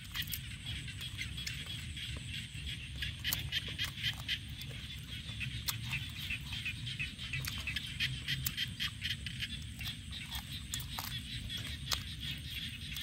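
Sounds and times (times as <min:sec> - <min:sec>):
chorus of high animal chirps: 0:00.0 - 0:13.0
crunchy chewing: 0:00.0 - 0:13.0.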